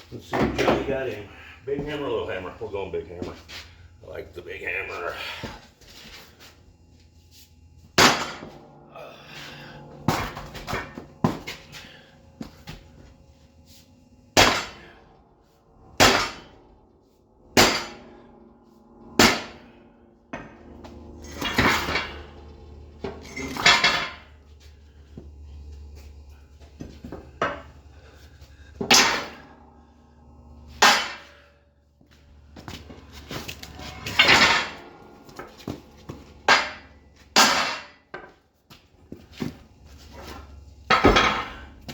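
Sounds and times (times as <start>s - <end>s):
hammer striking steel: 14.4s - 15.0s, 15.9s - 16.6s, 17.6s - 18.3s, 19.1s - 22.3s, 28.8s - 29.6s, 30.7s - 31.5s, 33.7s - 38.3s.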